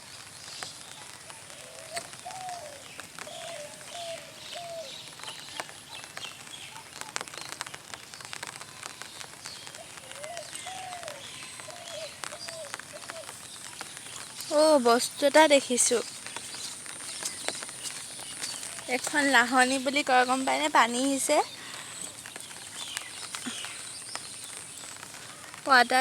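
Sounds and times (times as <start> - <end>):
dove cooing: 1.5 - 4.9
drizzle ticking: 10.3 - 26.0.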